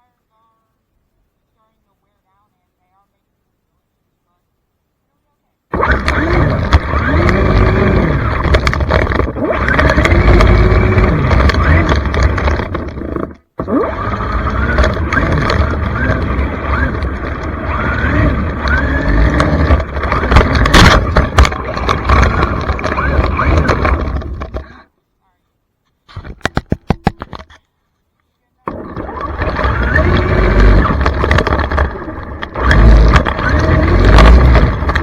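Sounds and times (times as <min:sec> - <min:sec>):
electric motor whining: 0:05.7 - 0:24.8, 0:28.7 - 0:35.0
heavy low rumble: 0:14.1 - 0:24.8.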